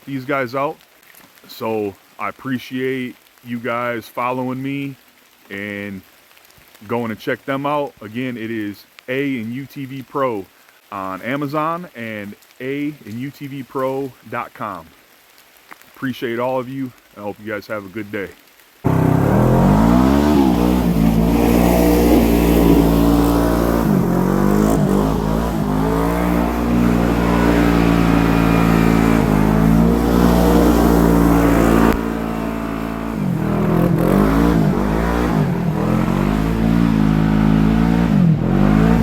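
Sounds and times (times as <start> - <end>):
utv engine accelerating: 18.9 - 39.0.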